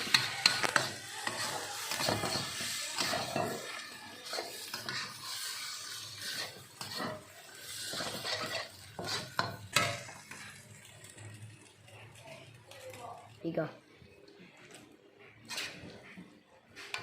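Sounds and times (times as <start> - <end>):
spatula scraping a pan: 0.0 - 10.9, 15.2 - 17.0
light sizzle: 0.0 - 17.0.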